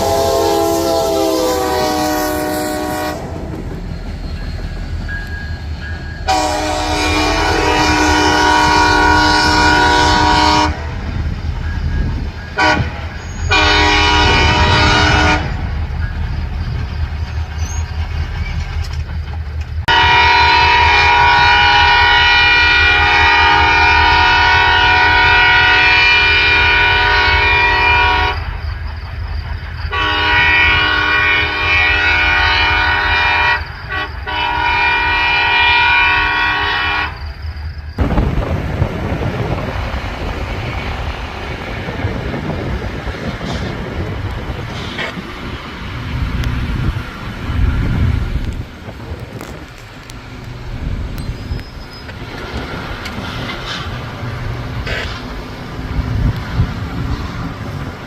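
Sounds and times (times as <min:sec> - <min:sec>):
train horn blasts: 0:00.0 - 0:03.4, 0:06.2 - 0:11.0, 0:12.6 - 0:15.8, 0:19.9 - 0:28.5, 0:29.9 - 0:37.2
freight train rumbling: 0:00.0 - 0:58.0.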